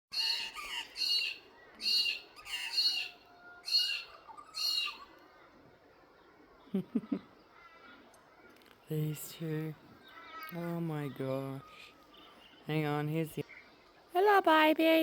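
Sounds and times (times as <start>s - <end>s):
magpie calling: 0.1s - 5.2s.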